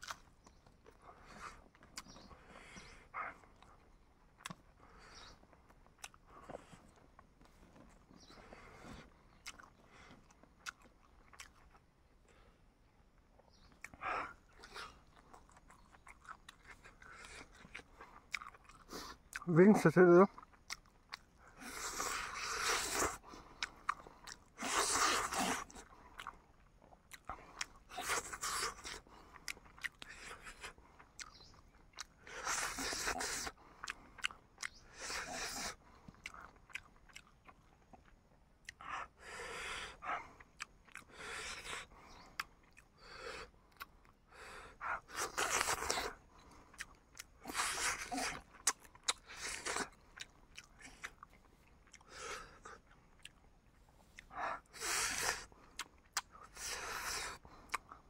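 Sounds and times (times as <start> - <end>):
person chewing and crunching: 0.0 - 12.6, 13.2 - 58.0
wet mouth clicks: 1.8 - 2.2, 46.8 - 53.4, 54.1 - 58.0.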